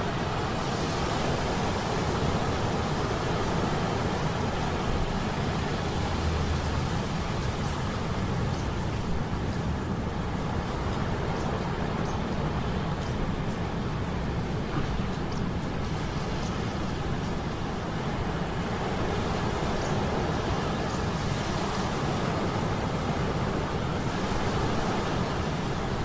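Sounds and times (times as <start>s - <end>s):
sea storm rushing: 0.0s - 26.0s.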